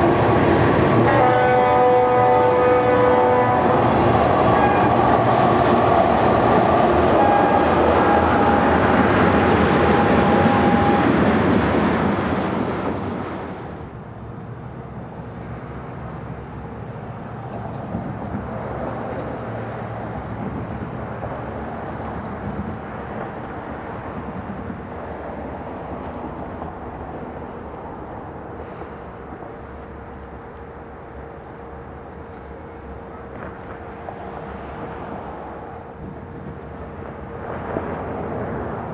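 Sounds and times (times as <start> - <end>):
freight train rumbling: 0.0 - 38.9
train horn: 0.9 - 5.6, 7.0 - 11.2.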